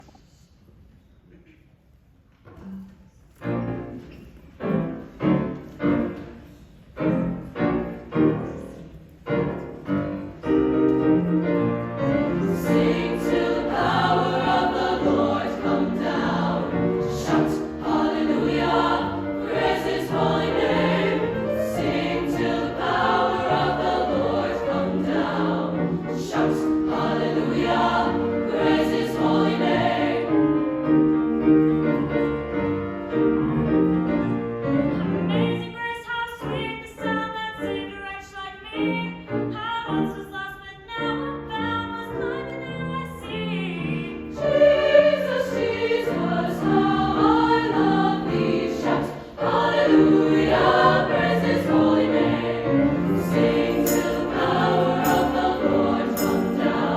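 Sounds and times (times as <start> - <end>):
piano: 2.5 - 56.9
treble choir singing: 4.6 - 33.0, 43.1 - 56.9.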